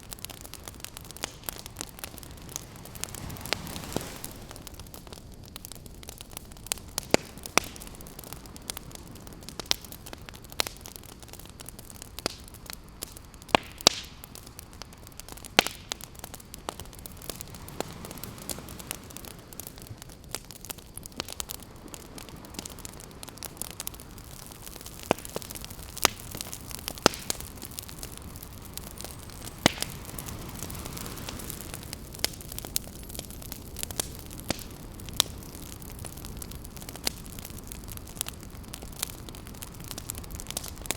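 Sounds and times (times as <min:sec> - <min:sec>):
campfire crackling and popping: 0:00.0 - 0:40.9
ocean waves hissing: 0:01.2 - 0:04.9, 0:27.9 - 0:32.1.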